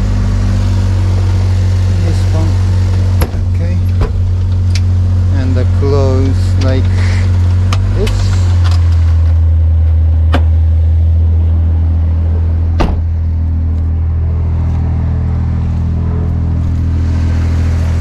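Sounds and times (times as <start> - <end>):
engine idling: 0.0 - 18.0
seat clicks and knock: 10.3 - 10.6, 12.8 - 13.1.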